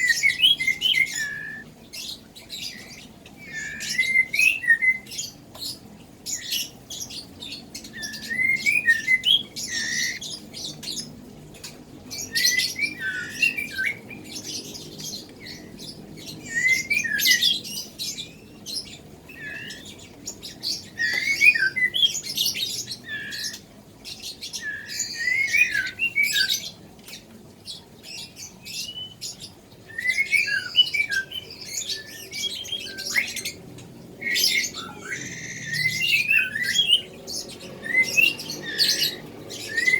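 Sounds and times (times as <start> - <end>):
bird chick begging chirps: 5.8 - 10.8.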